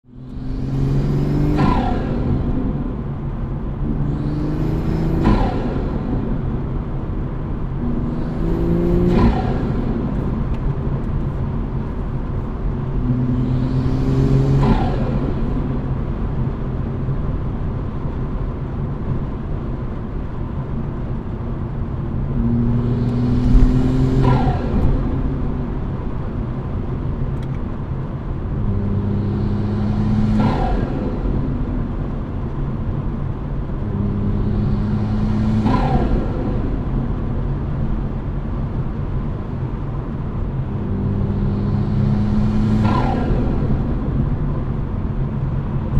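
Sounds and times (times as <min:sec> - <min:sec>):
car engine accelerating: 0:00.0 - 0:45.9.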